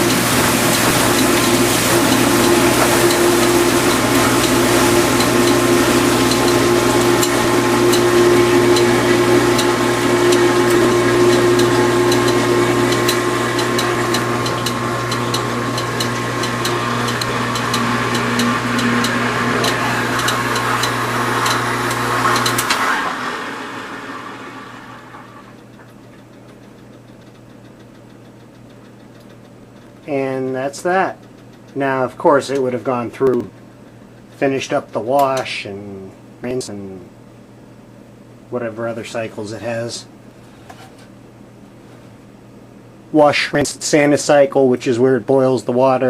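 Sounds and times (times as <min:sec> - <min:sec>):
water spraying inside dishwasher: 0:00.0 - 0:25.6
dishwasher motor humming: 0:00.0 - 0:37.0.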